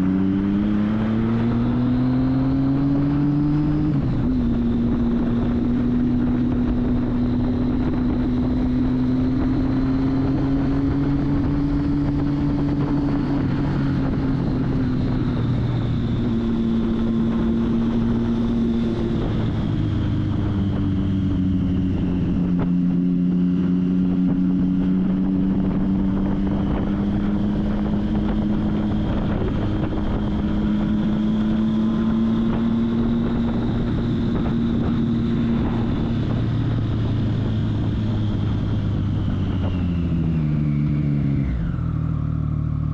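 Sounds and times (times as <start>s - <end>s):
motorcycle engine running: 0.0s - 42.9s
wind noise on microphone: 0.0s - 42.9s.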